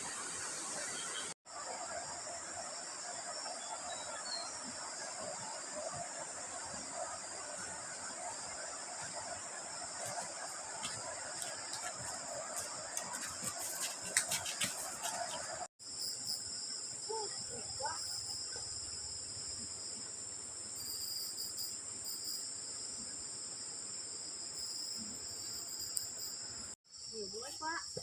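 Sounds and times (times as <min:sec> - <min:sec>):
insects trilling: 0:00.8 - 0:28.0
rustles and clicks: 0:10.1 - 0:15.7.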